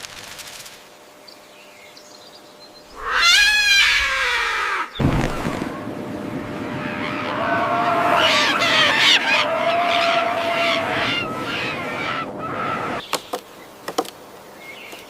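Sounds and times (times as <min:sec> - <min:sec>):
animal call with falling pitch: 0:02.9 - 0:05.9, 0:06.6 - 0:13.0.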